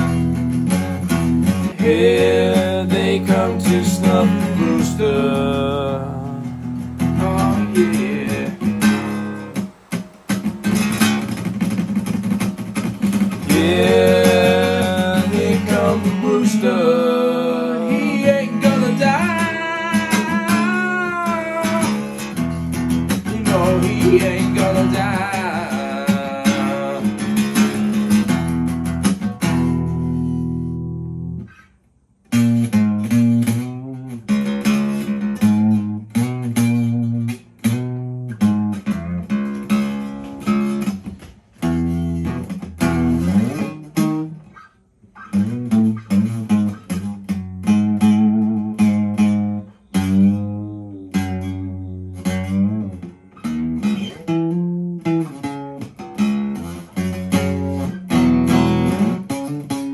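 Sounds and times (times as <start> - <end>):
bass and drums: 0.0 - 16.5
lead electric guitar solo: 0.0 - 31.6, 32.3 - 59.9.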